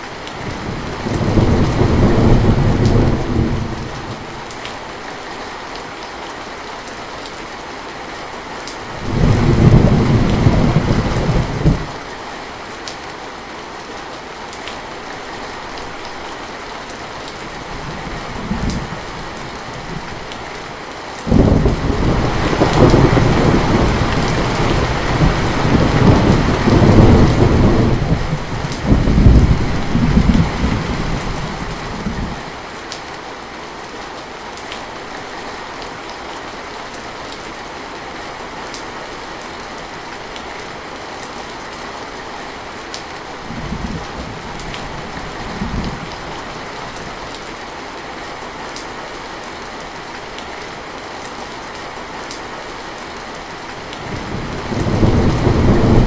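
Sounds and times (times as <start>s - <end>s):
heavy rain falling: 0.0s - 56.0s
thunder rumbling: 0.4s - 4.3s, 9.0s - 12.0s, 21.3s - 32.5s, 53.8s - 56.0s.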